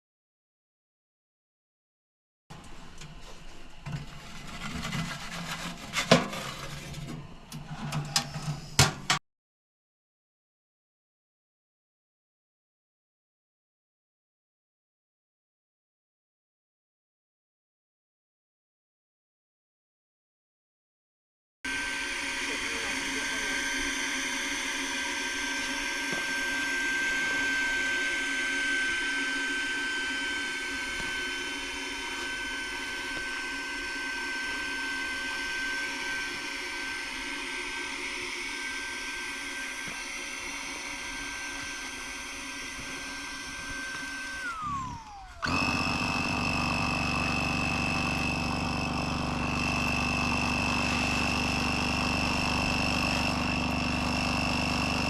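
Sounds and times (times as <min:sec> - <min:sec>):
higher-pitched motor hum: 0:21.7 - 0:55.0
small electric motor whining: 0:21.7 - 0:55.0.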